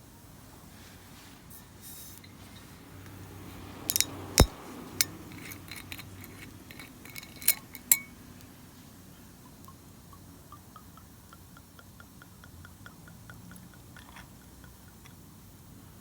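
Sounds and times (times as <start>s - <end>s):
glassware clinking: 3.9s - 8.2s.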